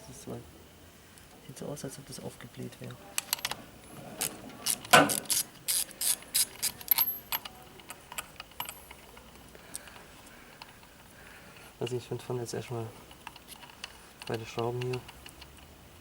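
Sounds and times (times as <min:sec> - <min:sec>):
hand ratchet clicking: 0:04.2 - 0:07.5.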